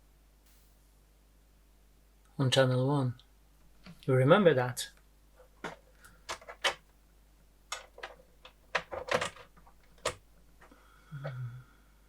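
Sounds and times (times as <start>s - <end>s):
oscilloscope buttons clicking: 6.3s - 6.8s, 7.7s - 10.2s.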